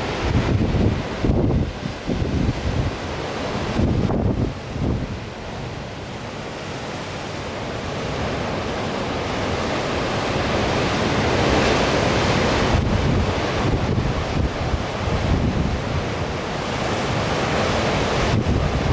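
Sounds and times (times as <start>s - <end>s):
wind buffeting microphone: 0.0s - 5.4s, 11.5s - 18.9s
sea surf breaking: 0.0s - 18.9s.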